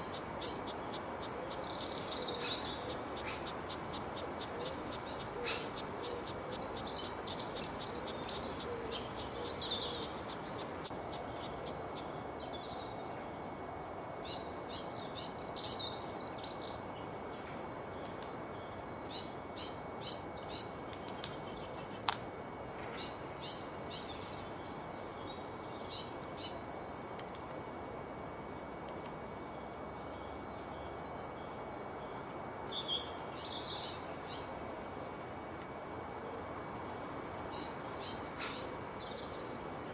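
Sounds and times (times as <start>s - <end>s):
songbird singing: 0.0s - 39.9s
steady background hiss: 0.0s - 39.9s.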